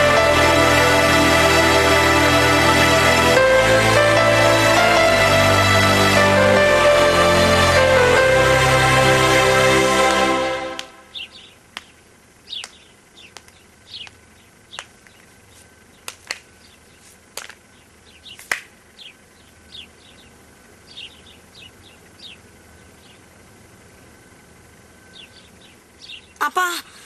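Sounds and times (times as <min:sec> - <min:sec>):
birds chirping: 0:10.8 - 0:27.0.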